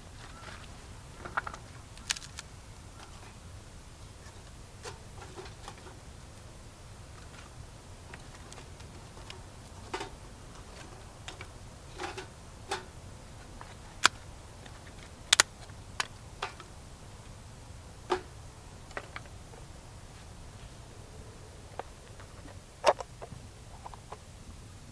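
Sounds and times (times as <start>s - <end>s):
wood fire crackling: 0.0s - 24.2s
sharp pops and snaps: 13.5s - 16.7s.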